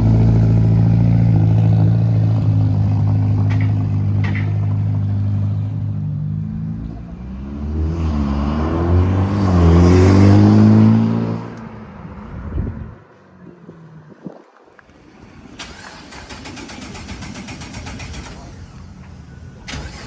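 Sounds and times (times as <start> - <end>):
sports car engine revving: 0.0 - 11.9.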